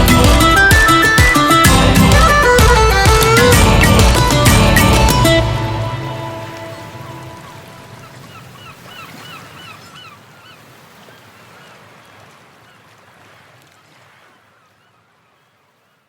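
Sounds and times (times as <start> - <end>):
birds honking: 0.0 - 10.6.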